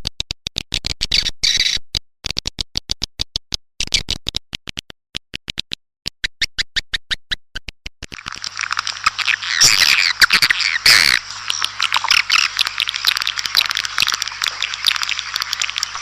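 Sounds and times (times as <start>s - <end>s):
rapid clicking bird chirps: 8.1s - 16.0s.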